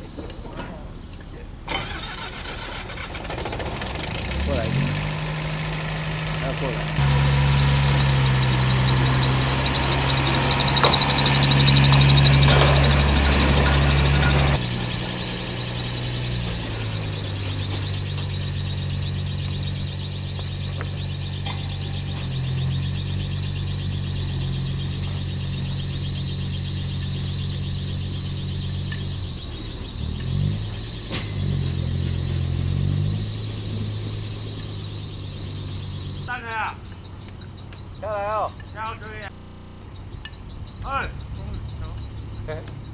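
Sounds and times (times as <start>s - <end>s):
maintenance rail car engine running: 0.0s - 42.9s
high warbling tone: 6.4s - 37.1s.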